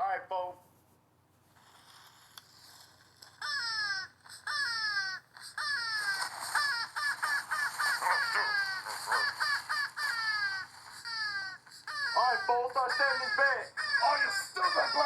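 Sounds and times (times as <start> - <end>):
bird squawking: 3.4 - 15.0.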